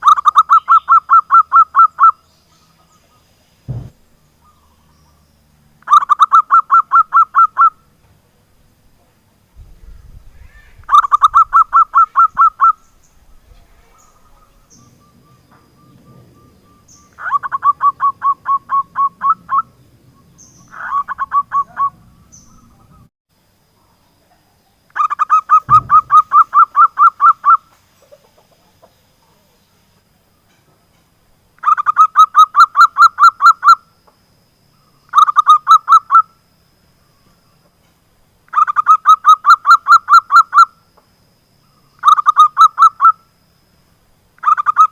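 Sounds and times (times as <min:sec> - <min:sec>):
dove calling staccato notes: 0:00.0 - 0:02.2, 0:05.8 - 0:07.8, 0:10.4 - 0:12.9, 0:13.9 - 0:19.8, 0:20.4 - 0:23.1, 0:25.0 - 0:28.9, 0:31.6 - 0:33.8, 0:35.1 - 0:36.3, 0:38.5 - 0:40.7, 0:42.0 - 0:43.2, 0:44.4 - 0:44.9.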